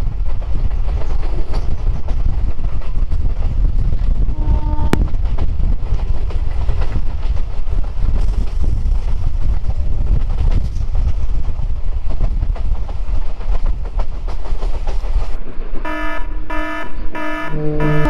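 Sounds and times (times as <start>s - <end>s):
track clicks and clacks: 0.0s - 4.2s, 4.8s - 18.0s
train wheels rumbling on rails: 0.0s - 18.0s.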